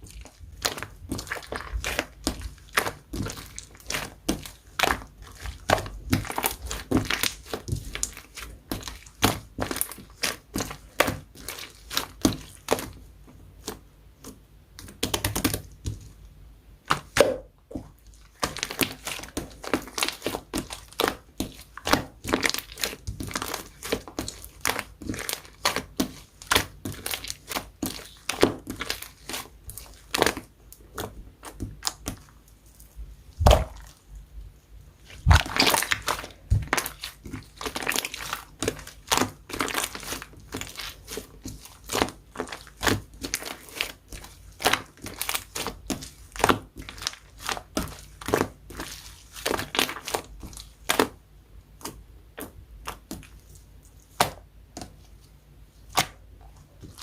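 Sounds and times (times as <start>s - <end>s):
slime crackling and popping: 0.0s - 13.0s, 16.8s - 32.3s, 33.4s - 34.0s, 35.0s - 51.2s.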